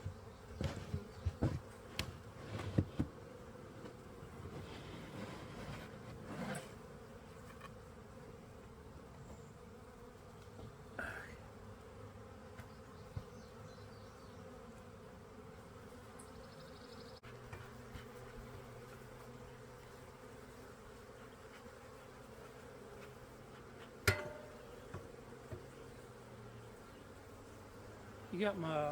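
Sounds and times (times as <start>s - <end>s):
honey bees buzzing: 0.0s - 28.9s
brief scrape: 4.6s - 6.8s.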